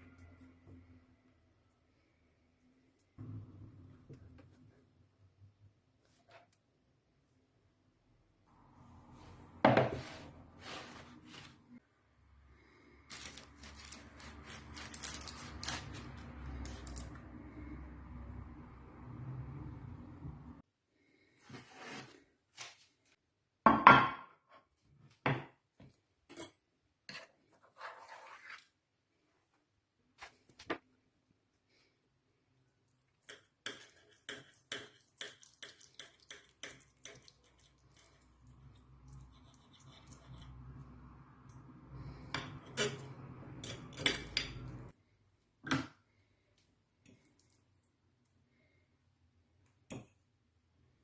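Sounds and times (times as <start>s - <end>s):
kitchen utensils clicking and scraping: 13.1s - 17.2s, 42.3s - 44.9s.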